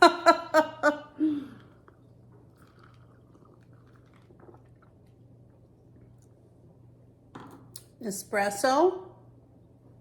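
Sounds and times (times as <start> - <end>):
steady low hum: 0.0 - 10.0
sipping and swallowing: 1.4 - 6.4.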